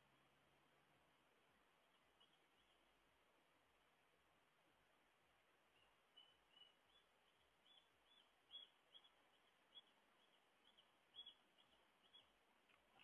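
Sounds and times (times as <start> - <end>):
small bird chirping: 1.7 - 3.0, 5.6 - 13.0.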